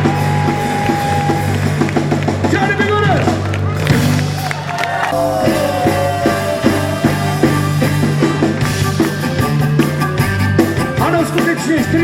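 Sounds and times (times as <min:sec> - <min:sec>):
bass line: 0:00.0 - 0:12.0
rock band playing: 0:00.0 - 0:12.0
drum beat: 0:05.2 - 0:12.0.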